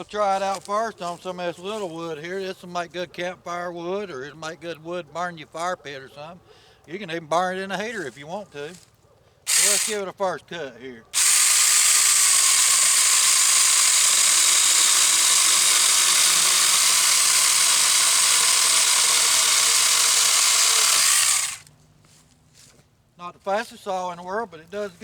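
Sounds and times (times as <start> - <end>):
mini chainsaw sawing wood: 9.5 - 10.1, 11.1 - 21.7.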